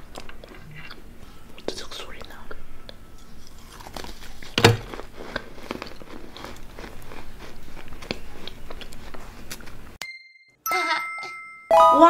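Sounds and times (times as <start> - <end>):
chewing frozen chalk crunching: 1.6 - 9.8.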